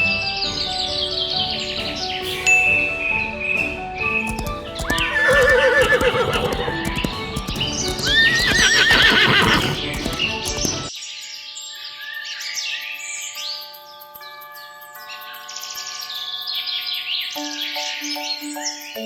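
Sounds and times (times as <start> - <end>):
background music: 0.0 - 10.9
hooves clip-clopping: 4.2 - 10.9
horse whinnying: 4.3 - 10.9.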